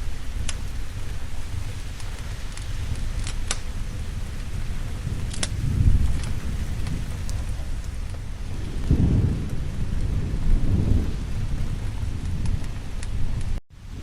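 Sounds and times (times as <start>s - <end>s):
low rolling thunder: 0.0s - 14.0s
steady rain: 0.0s - 14.0s.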